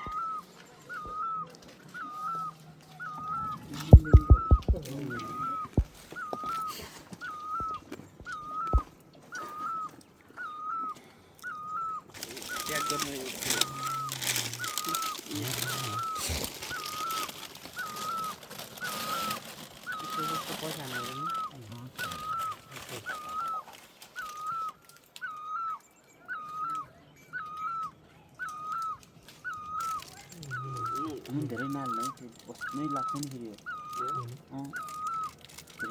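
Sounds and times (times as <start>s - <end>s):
animal high whistle-like call: 0.0s - 23.6s, 24.2s - 35.9s
low thumps: 3.9s - 4.9s, 5.7s - 6.0s.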